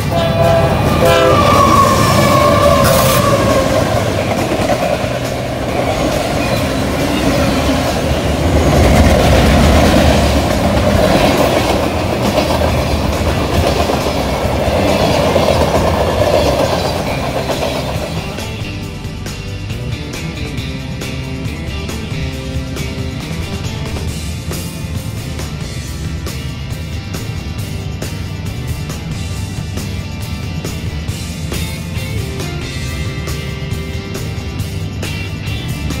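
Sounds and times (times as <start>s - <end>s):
diesel locomotives passing: 0.0s - 36.0s
freight cars rumbling on rails: 0.0s - 36.0s.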